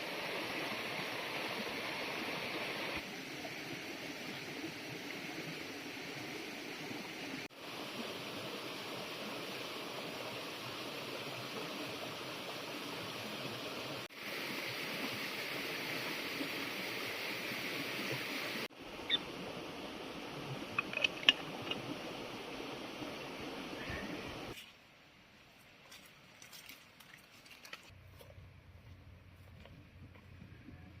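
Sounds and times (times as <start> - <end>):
flowing water rushing: 0.0 - 24.6.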